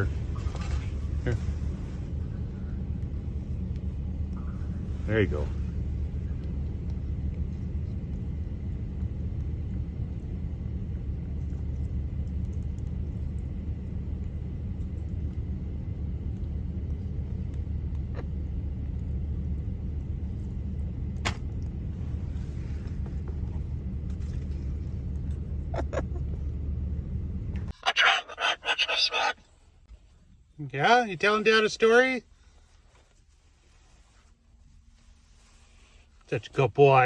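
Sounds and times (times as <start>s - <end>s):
vehicle idling: 0.0s - 34.0s.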